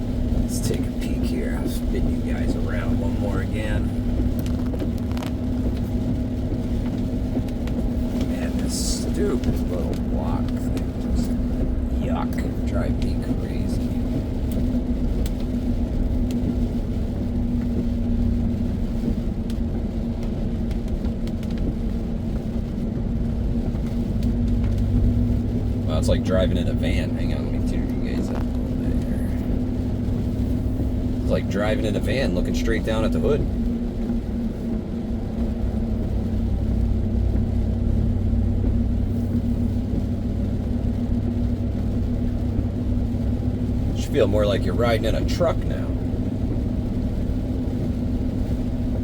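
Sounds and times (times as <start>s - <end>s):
vehicle engine and road rumble: 0.0s - 49.0s.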